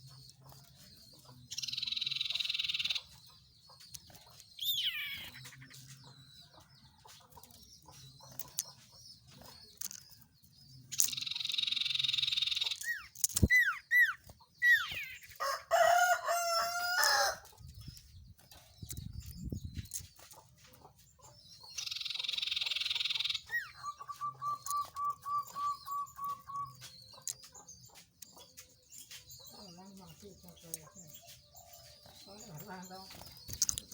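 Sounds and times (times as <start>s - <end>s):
whistled bird trill: 4.6s - 5.4s, 11.1s - 15.3s, 21.8s - 26.9s
whistled bird notes: 4.6s - 5.8s, 11.0s - 15.3s, 21.8s - 27.2s
rooster crowing: 15.4s - 17.4s.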